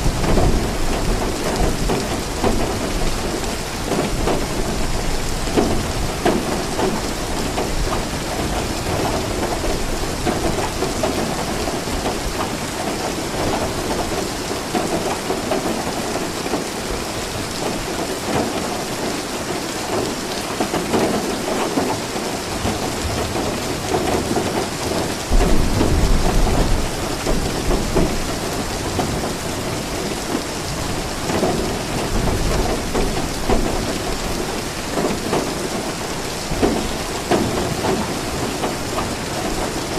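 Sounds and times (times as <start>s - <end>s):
low rumble of thunder: 0.0s - 15.6s, 22.5s - 39.9s
steady rain falling: 0.0s - 39.9s.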